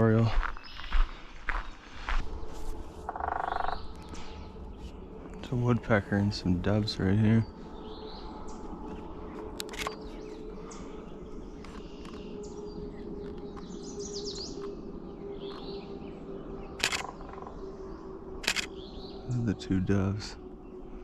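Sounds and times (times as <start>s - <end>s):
songbirds chirping and singing: 0.0s - 21.0s
camera shutter clicks: 16.8s - 17.1s, 18.4s - 18.7s.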